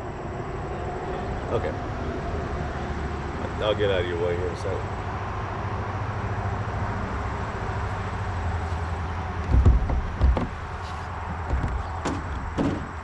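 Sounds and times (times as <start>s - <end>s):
heavy thumps: 8.6s - 13.0s.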